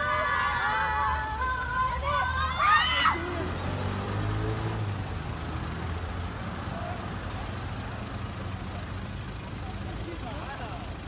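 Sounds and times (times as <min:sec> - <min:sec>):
vehicle engine idling: 0:00.0 - 0:04.0, 0:04.8 - 0:11.0
street noise: 0:00.0 - 0:11.0.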